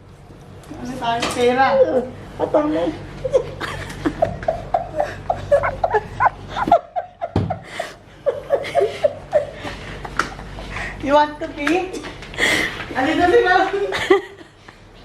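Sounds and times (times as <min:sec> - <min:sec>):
people giggling: 0:03.2 - 0:10.6, 0:13.0 - 0:14.8.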